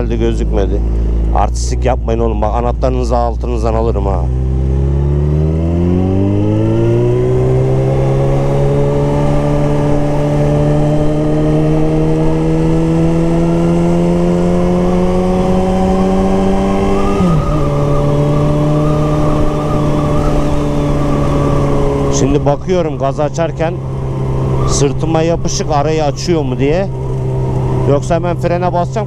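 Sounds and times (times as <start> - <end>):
motorcycle engine accelerating: 0.0 - 29.0
wind buffeting microphone: 17.0 - 27.9.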